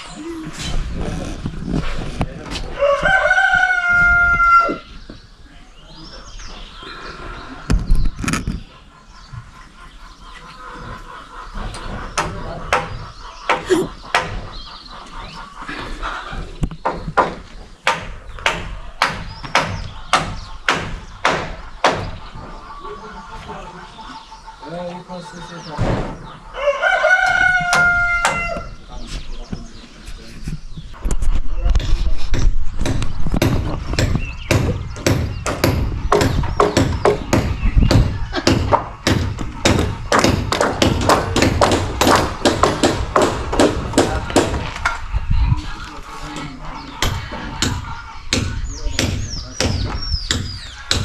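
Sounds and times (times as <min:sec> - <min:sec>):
hammer striking wooden timbers: 0:12.2 - 0:14.5, 0:16.8 - 0:22.4, 0:27.2 - 0:28.7, 0:32.8 - 0:45.0, 0:47.0 - 0:51.0.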